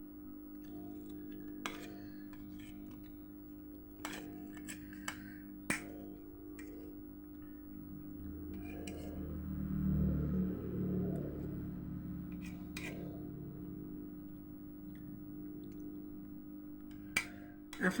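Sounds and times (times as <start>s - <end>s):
steady low hum: 0.0s - 18.0s
low rumble: 7.4s - 17.0s.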